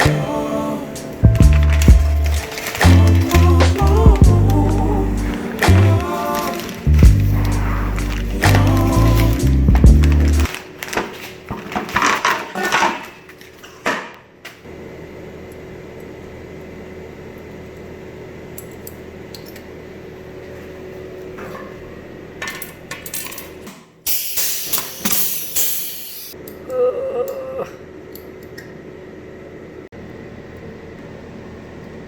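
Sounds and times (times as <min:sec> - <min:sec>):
machine hum: 0:00.0 - 0:10.6.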